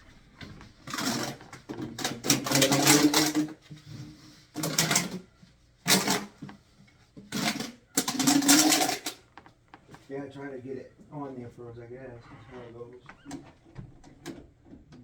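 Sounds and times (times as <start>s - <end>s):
plastic parts clattering and scraping: 0.4s - 6.6s, 7.2s - 9.3s.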